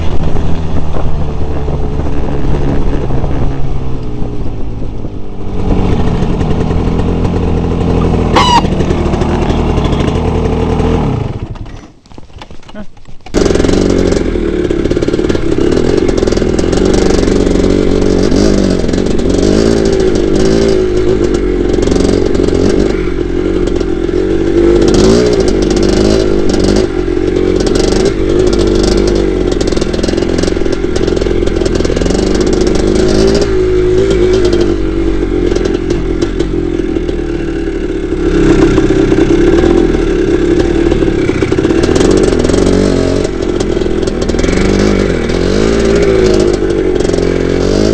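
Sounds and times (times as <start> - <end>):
dirt bike engine revving: 5.4 - 11.8, 12.7 - 47.9
knocks and clatter: 11.4 - 14.2.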